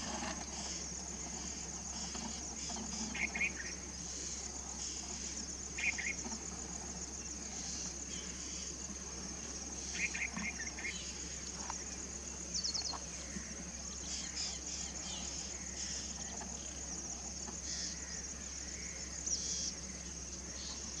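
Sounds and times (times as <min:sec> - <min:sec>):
high-pitched insect trill: 0:00.0 - 0:21.0.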